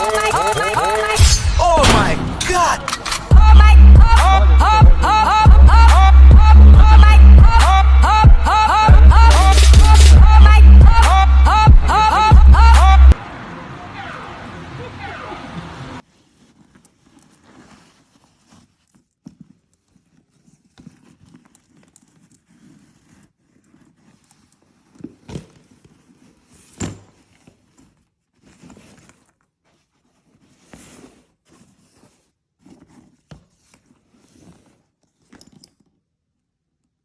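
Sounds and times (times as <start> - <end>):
packaging rustling and crinkling: 16.0 - 35.5.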